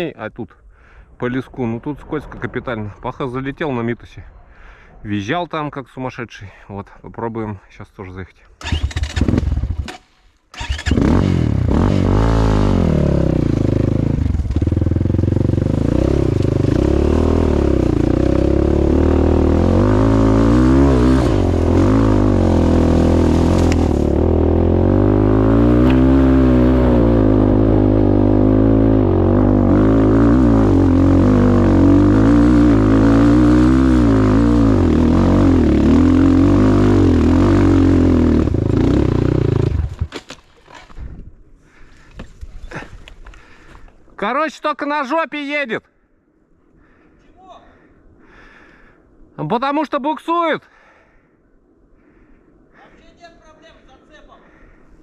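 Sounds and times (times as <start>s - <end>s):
motorcycle engine revving: 8.6s - 40.1s.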